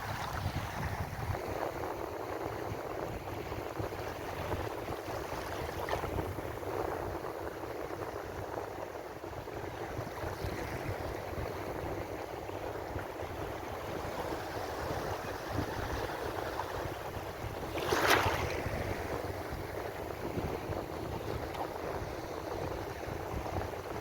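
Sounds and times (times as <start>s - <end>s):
ocean waves washing on shore: 0.0s - 24.0s
breaking surf splash: 17.6s - 19.6s.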